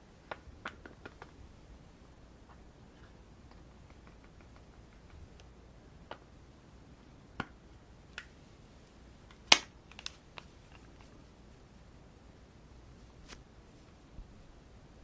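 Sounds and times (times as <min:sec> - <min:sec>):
makeup cases clicking and tapping: 0:03.5 - 0:05.2.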